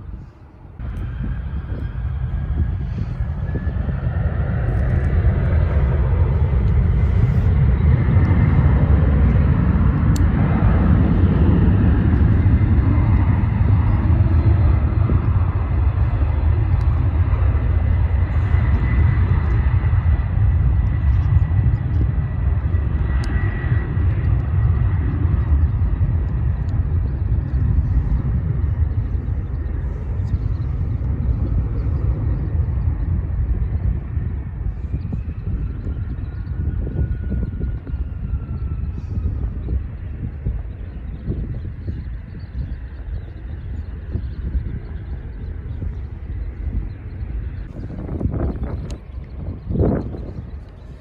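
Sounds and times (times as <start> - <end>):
jet engine rumble: 0.0 - 51.0.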